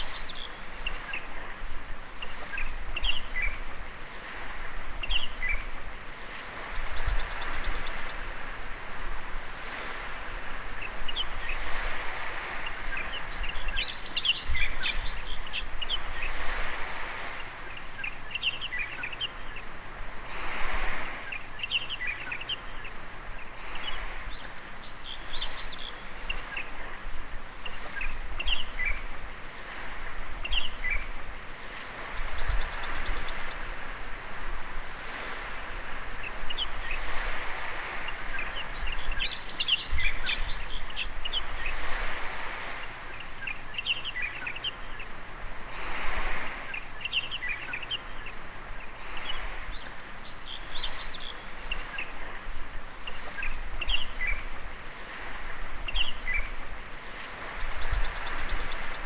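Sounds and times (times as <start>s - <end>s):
small waves on a beach: 0.0s - 59.0s
birds chirping and calling: 38.0s - 42.0s, 42.6s - 45.2s, 57.4s - 59.0s.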